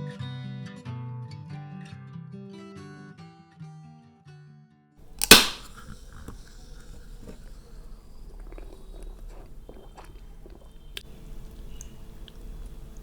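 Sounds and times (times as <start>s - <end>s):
loud sharp crack: 5.0s - 9.7s.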